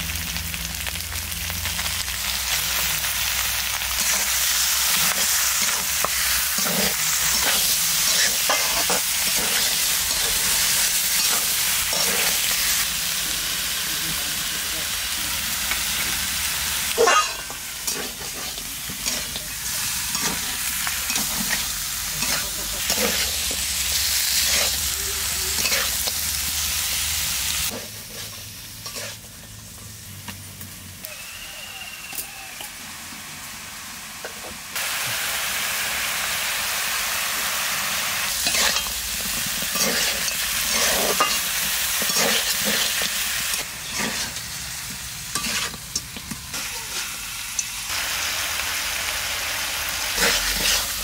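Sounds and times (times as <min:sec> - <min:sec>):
meat sizzling in hot oil: 0:00.0 - 0:51.0
metal spatula scraping pan: 0:27.7 - 0:29.2, 0:39.6 - 0:44.4, 0:45.3 - 0:46.1.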